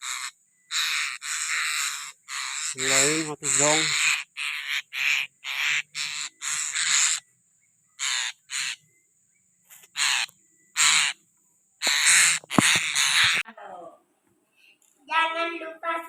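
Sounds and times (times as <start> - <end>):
birds giving harsh screechy calls: 0.0 - 8.9, 9.6 - 11.2, 11.8 - 13.4.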